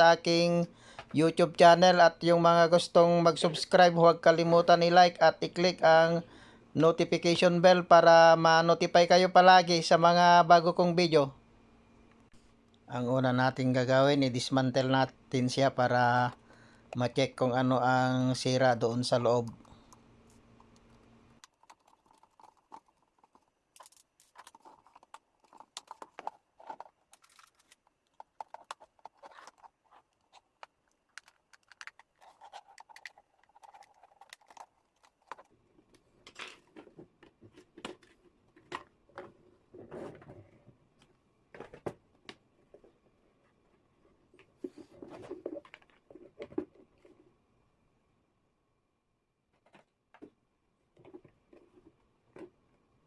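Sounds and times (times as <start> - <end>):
kettle parts clicking and scraping: 19.4 - 35.6.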